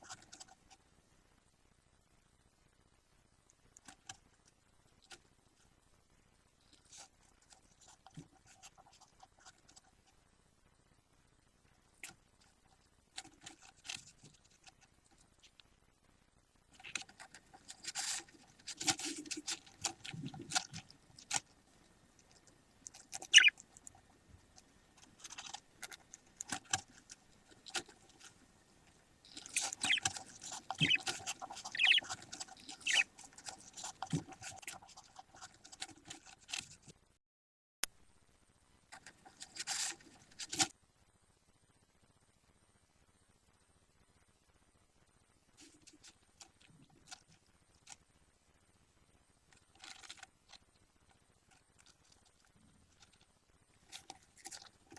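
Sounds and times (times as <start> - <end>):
chicks scratching and rustling: 0.0 - 0.9, 6.6 - 10.2, 12.0 - 15.6, 16.7 - 37.0, 38.9 - 40.7, 45.6 - 48.0, 49.5 - 54.9
high squeaks: 23.2 - 23.6, 29.3 - 33.1.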